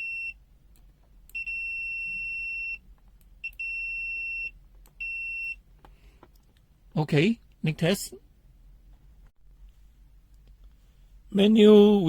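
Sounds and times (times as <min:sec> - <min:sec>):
multimeter continuity beep: 0:01.3 - 0:02.8, 0:03.4 - 0:05.6.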